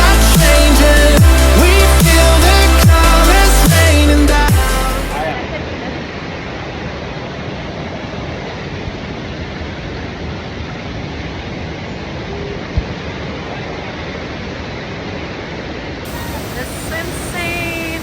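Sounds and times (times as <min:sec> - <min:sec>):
steady rushing noise: 0:16.1 - 0:18.0.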